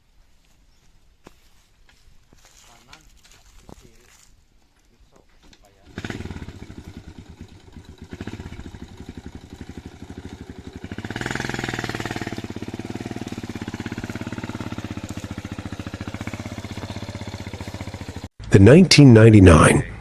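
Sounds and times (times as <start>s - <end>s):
heavy diesel engine chugging: 5.9s - 18.3s.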